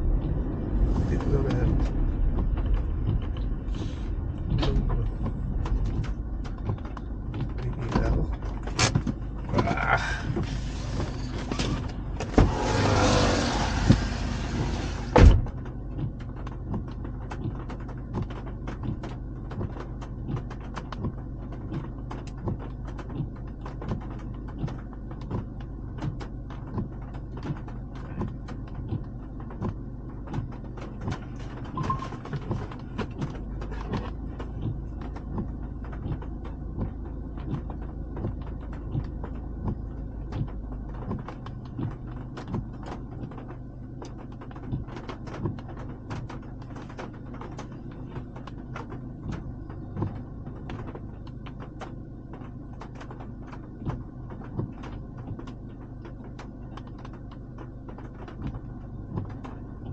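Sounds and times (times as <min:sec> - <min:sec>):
rush of noise: 0:00.0 - 0:05.8
car engine and road hum: 0:00.0 - 0:59.9
raindrops tapping: 0:15.6 - 0:59.9.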